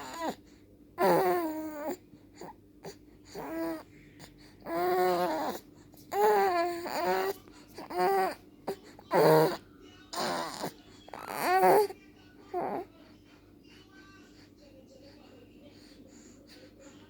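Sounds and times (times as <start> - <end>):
baby whining: 0.0 - 0.4, 1.0 - 3.9, 4.6 - 12.9.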